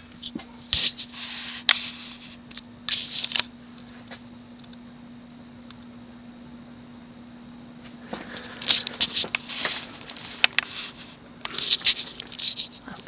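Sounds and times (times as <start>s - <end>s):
ceiling fan motor hum: 0.0s - 13.0s
rustling noises: 7.8s - 13.0s.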